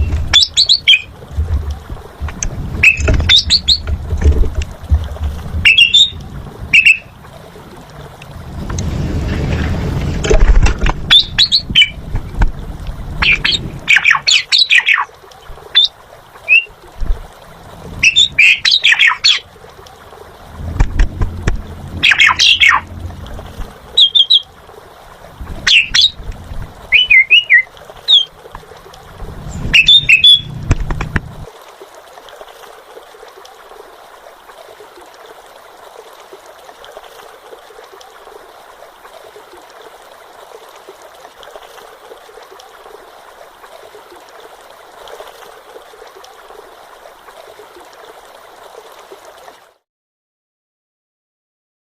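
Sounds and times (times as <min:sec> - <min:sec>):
starling singing whistles and chatters: 0:02.8 - 0:03.8, 0:05.7 - 0:07.1, 0:15.8 - 0:16.7, 0:18.0 - 0:19.4, 0:22.0 - 0:22.8, 0:24.0 - 0:24.5, 0:25.7 - 0:26.2, 0:26.9 - 0:28.3, 0:29.5 - 0:30.6.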